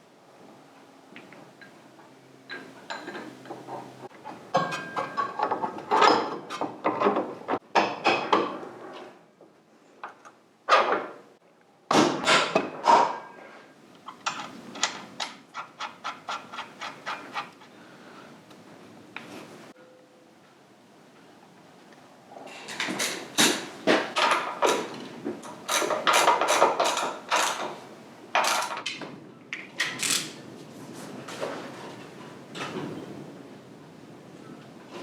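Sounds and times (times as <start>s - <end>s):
tools and metal parts clattering: 2.5s - 8.5s, 22.6s - 27.8s, 28.4s - 29.0s, 29.7s - 30.4s.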